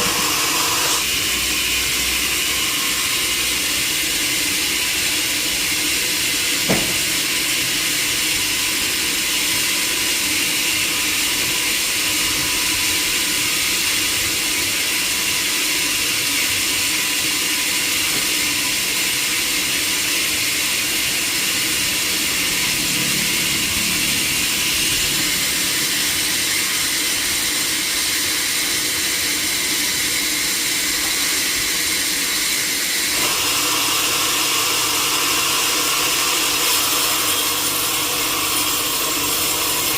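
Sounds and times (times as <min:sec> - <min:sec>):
sawmill machinery running: 0:00.0 - 0:39.9
sharp knock: 0:06.7 - 0:07.1.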